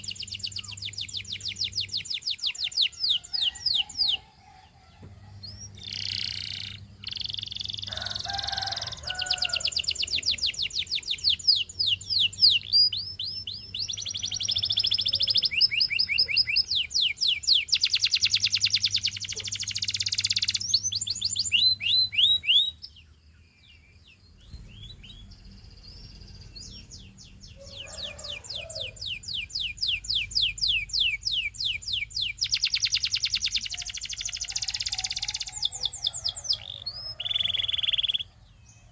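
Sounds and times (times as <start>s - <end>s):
canary singing rapid trills: 0.0s - 38.9s.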